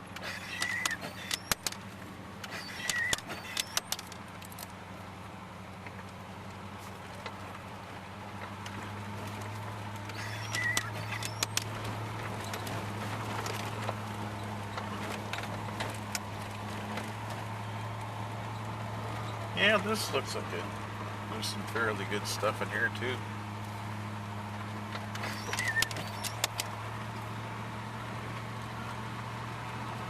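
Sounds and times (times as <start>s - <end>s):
truck engine droning: 0.0s - 30.0s
loose things rattling in cab: 0.1s - 1.8s, 2.4s - 4.7s, 10.0s - 17.2s, 24.5s - 26.8s.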